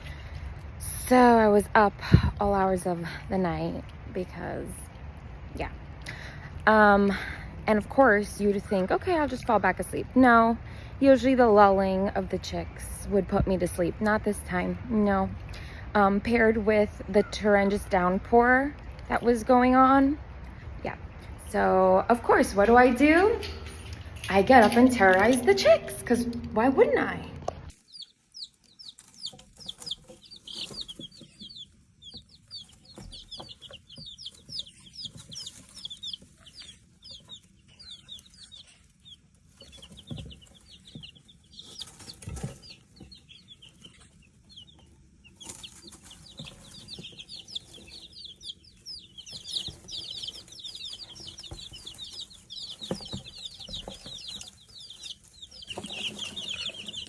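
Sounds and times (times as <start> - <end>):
chicks peeping: 0.0 - 57.0
soft knocks: 49.3 - 54.5.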